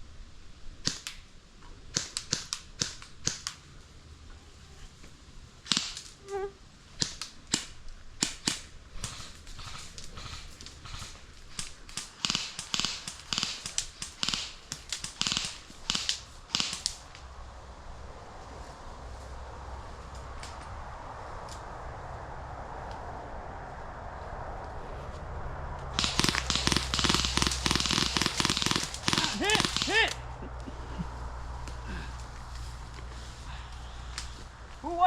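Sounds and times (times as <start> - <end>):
airsoft guns firing: 5.7 - 6.1, 7.0 - 17.1, 26.0 - 30.3.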